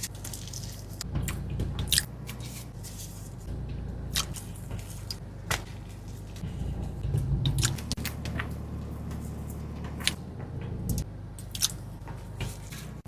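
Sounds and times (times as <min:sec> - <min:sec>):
low steady hum: 0:00.0 - 0:13.0
person chewing food: 0:10.9 - 0:11.9.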